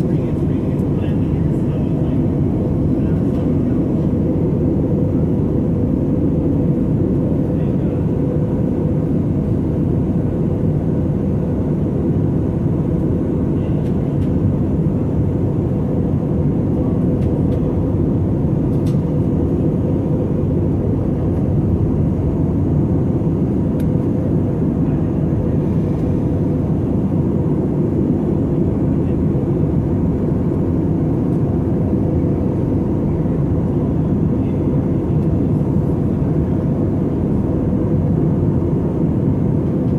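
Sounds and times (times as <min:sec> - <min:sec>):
airplane cabin engine rush: 0:00.0 - 0:39.9.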